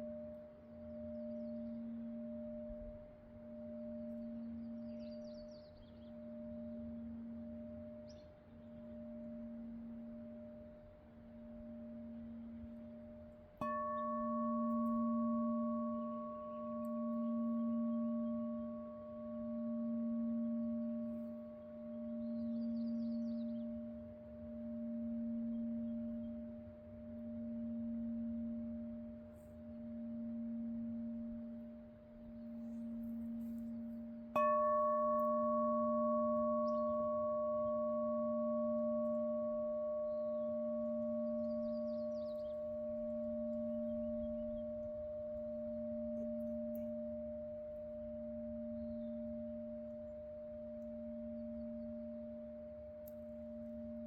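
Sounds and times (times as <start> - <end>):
singing bowl humming: 0.0 - 54.0
singing bowl strike ringing: 11.3 - 54.0.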